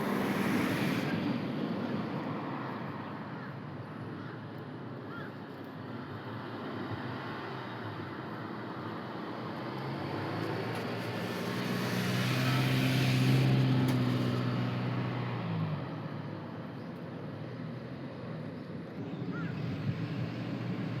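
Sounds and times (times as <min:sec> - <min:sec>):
vehicle engine passing by: 0:09.6 - 0:16.0.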